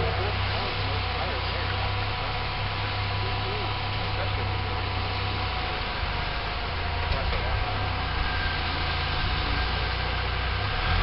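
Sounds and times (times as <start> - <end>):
car engine running at low revs: 0.0 - 11.0.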